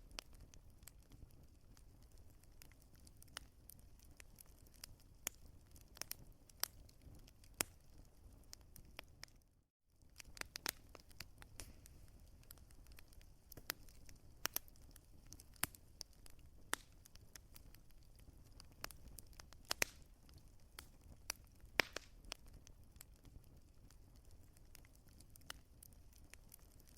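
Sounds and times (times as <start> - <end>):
wood fire crackling: 0.0 - 26.9
soft low hiss: 10.0 - 26.2.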